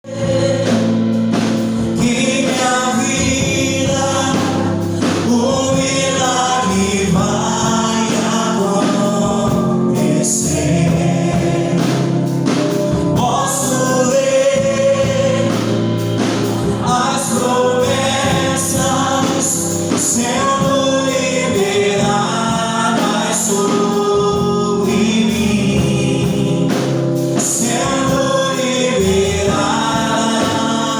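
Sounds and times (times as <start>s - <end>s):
group of voices singing: 0.0s - 30.9s
instrumental accompaniment: 0.0s - 30.9s.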